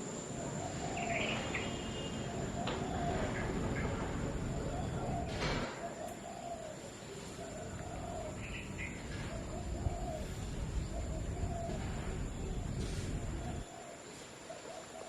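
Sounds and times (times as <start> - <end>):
dove cooing: 0.3 - 15.0
rain: 7.8 - 15.0.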